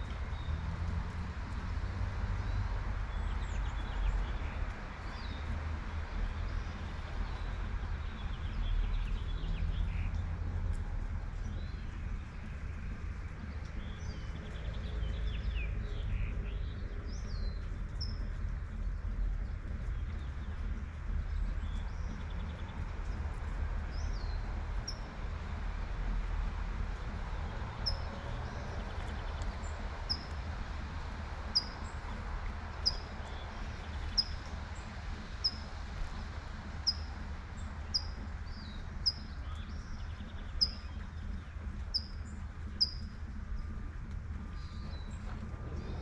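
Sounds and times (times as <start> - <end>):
light rain: 0.0 - 46.0
low traffic rumble: 0.0 - 46.0
bird chirping: 36.8 - 43.7.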